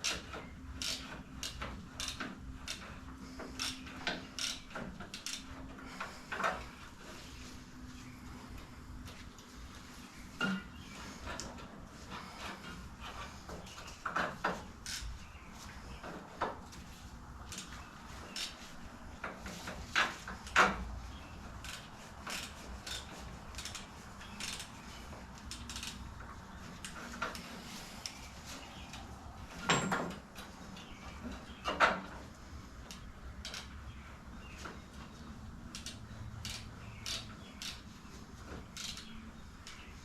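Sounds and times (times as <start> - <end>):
metal tools clinking and knocking: 29.6 - 30.2.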